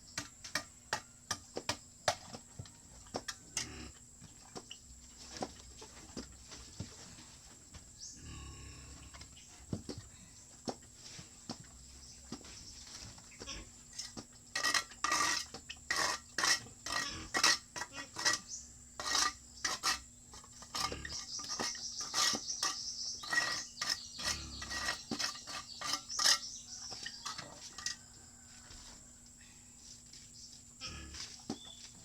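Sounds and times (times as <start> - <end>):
scraping: 12.4 - 28.2.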